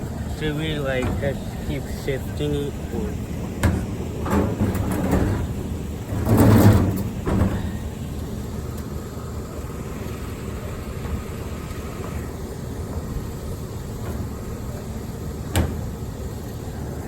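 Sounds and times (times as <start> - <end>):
metal cabinet scraping slide: 0.0 - 8.0
steady low rumble: 0.0 - 17.0
metal cabinet knocks: 3.0 - 7.8, 13.8 - 16.1.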